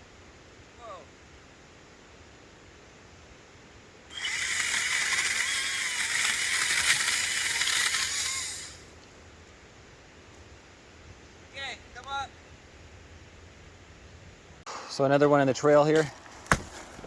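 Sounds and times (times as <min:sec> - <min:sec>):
chainsaw cutting a branch: 0:04.1 - 0:08.9, 0:16.4 - 0:17.0.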